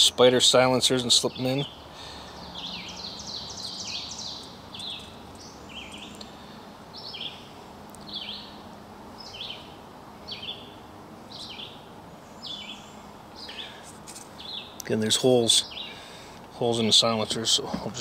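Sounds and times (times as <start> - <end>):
bird chirp sliding downward: 2.4 - 6.3.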